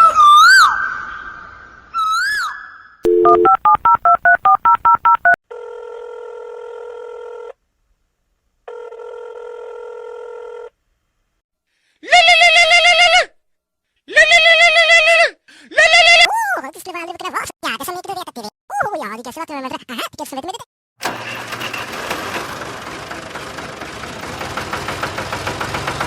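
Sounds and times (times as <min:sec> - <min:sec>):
ringback tones: 0:03.1 - 0:04.0
warbling telephone ring: 0:03.1 - 0:04.0
telephone keypad beeps: 0:03.1 - 0:05.4.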